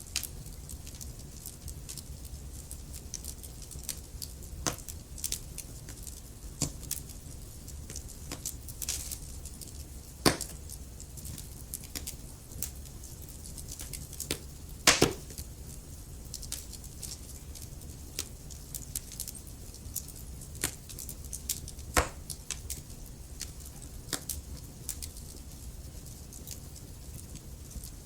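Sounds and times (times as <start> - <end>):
burning logs crackling: 0.0 - 28.0.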